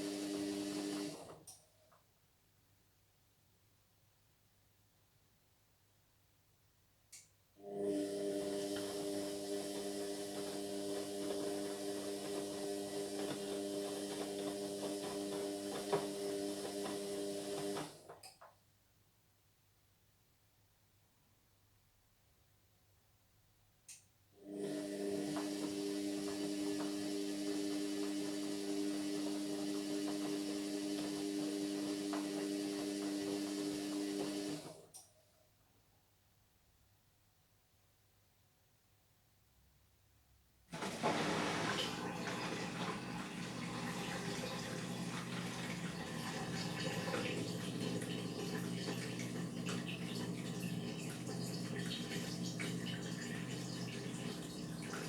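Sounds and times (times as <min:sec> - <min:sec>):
washing machine humming: 0:00.0 - 0:01.4, 0:07.6 - 0:18.1, 0:24.4 - 0:34.9, 0:40.7 - 0:55.0
knocks of washing machine stopping: 0:40.8 - 0:55.0.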